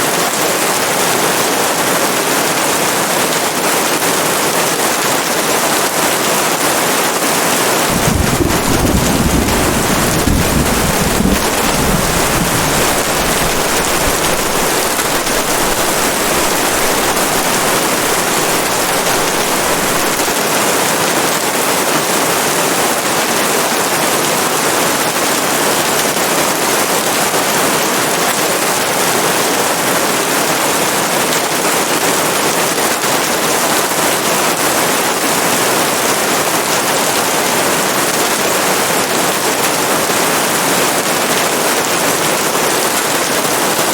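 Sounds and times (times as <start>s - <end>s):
heavy rain falling: 0.0s - 43.9s
low rumble: 7.9s - 20.1s.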